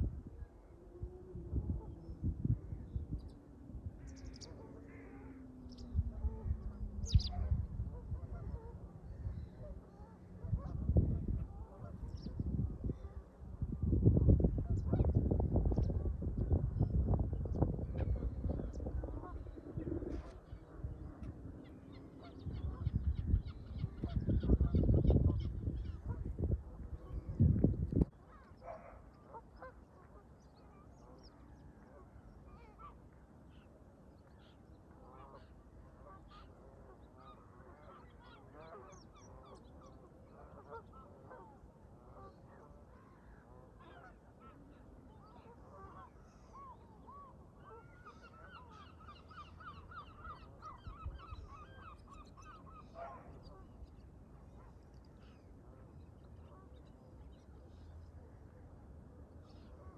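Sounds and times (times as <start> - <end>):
wind on microphone: 0.0 - 28.9.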